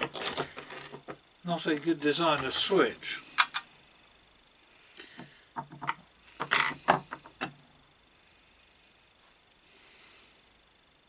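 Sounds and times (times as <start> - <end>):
hard parts clicking on workbench: 0.0 - 1.2
soft hiss: 0.4 - 11.0.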